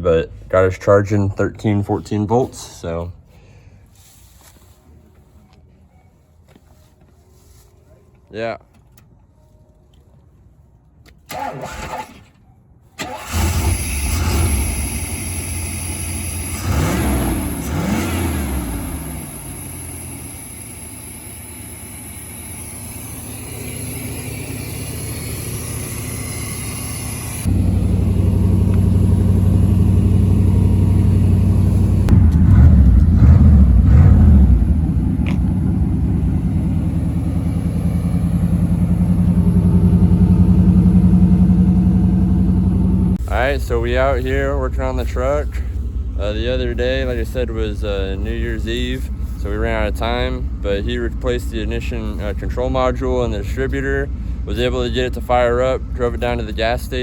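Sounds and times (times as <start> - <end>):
truck engine starting and idling: 0.0 - 3.2, 10.0 - 57.0
truck engine revving: 13.0 - 53.0.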